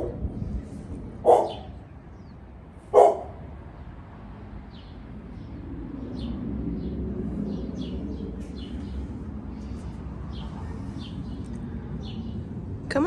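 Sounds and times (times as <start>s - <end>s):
low outdoor rumble: 0.0s - 13.0s
small birds chirping: 1.3s - 3.2s, 4.7s - 13.0s.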